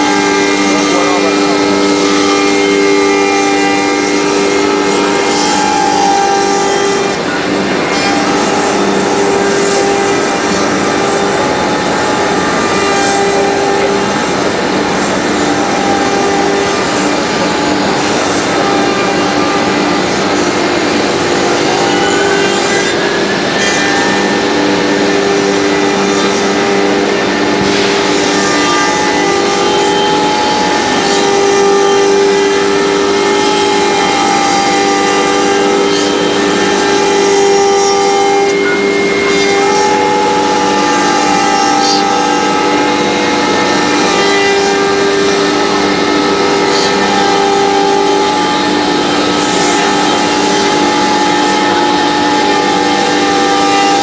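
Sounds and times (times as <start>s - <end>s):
cnc router whining: 0.0s - 54.0s.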